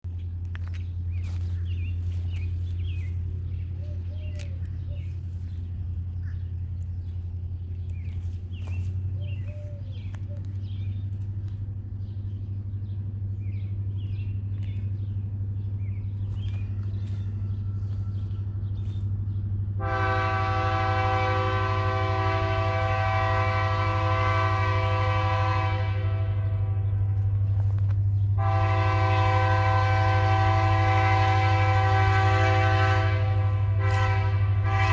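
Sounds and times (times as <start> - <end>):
birds chirping: 0.0 - 34.9
diesel locomotive rumble: 0.0 - 34.9
locomotive horn blast: 17.0 - 34.9.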